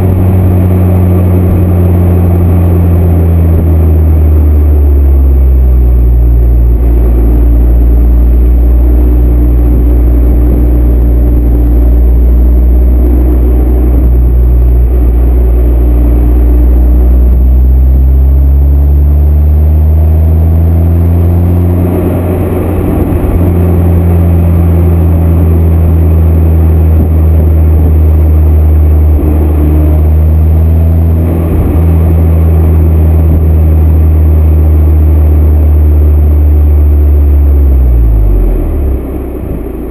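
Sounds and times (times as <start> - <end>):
car exhaust drone: 0.0 - 39.9.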